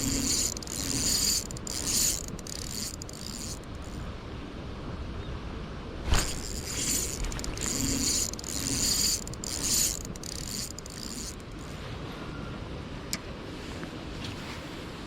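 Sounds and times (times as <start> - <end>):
fishing reel cranking whir: 0.0 - 4.0, 6.2 - 11.7.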